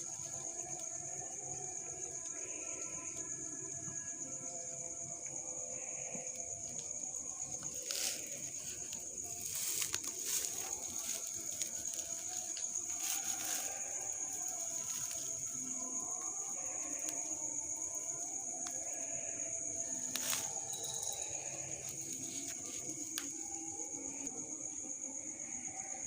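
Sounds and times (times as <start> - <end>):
high-pitched insect drone: 0.0 - 26.0
rustling: 7.5 - 17.3, 19.9 - 23.4.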